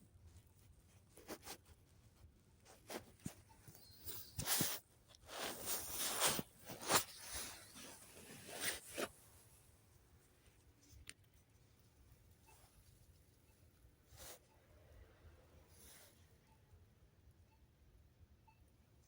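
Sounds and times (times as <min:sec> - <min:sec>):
fabric rustling: 0:02.6 - 0:09.4.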